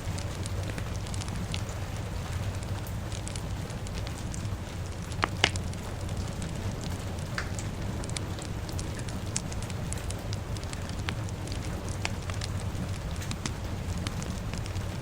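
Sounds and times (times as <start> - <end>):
fire crackling and popping: 0.0 - 15.0
rain hiss: 0.0 - 15.0.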